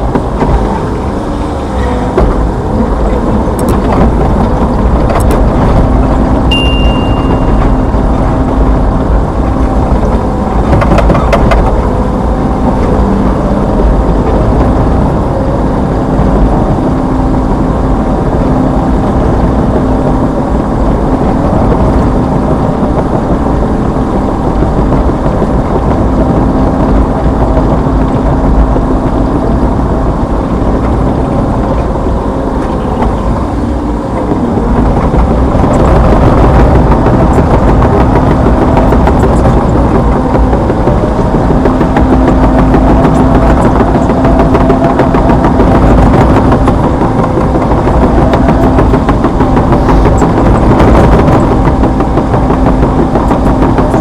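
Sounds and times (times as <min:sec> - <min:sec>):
excavator diesel engine running: 0:00.0 - 0:54.0
clatter of knocks: 0:09.4 - 0:11.9.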